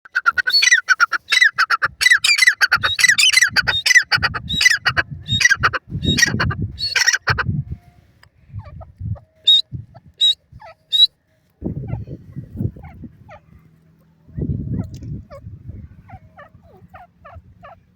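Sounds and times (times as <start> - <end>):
bird calling shrill notes: 0.4 - 7.2, 9.2 - 11.1.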